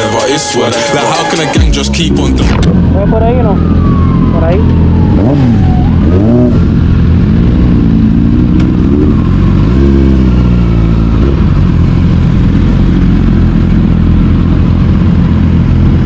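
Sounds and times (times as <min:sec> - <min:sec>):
motorcycle engine revving: 0:01.4 - 0:16.0.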